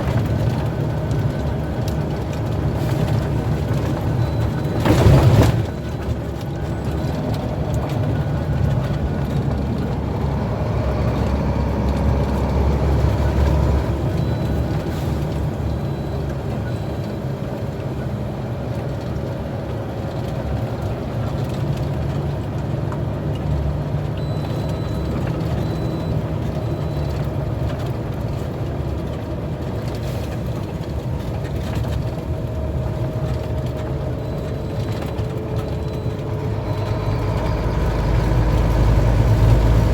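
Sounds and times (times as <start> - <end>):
heavy truck engine running: 0.0 - 39.9
road noise: 0.0 - 39.9.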